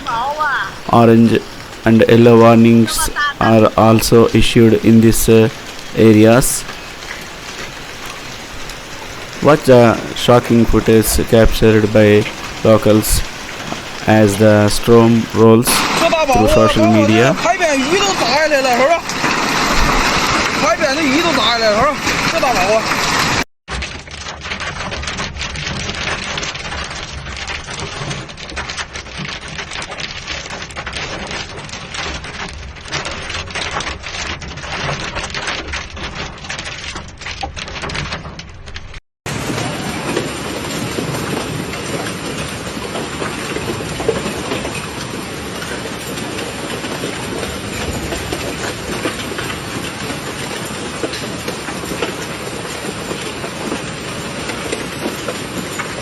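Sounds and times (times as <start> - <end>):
heavy hail and rain pouring: 0.0 - 56.0
hailstones clattering on hard surfaces: 0.1 - 56.0.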